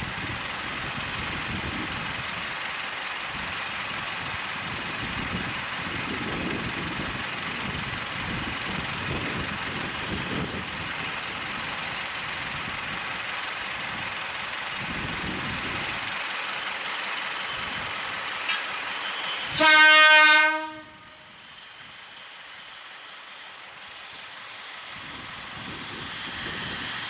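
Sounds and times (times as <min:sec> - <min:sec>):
train rumble: 0:00.0 - 0:27.0
train horn blast: 0:19.4 - 0:21.4.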